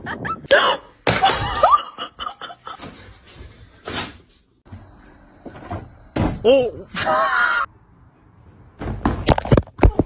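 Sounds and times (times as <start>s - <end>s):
person laughing and snickering: 1.6s - 3.2s.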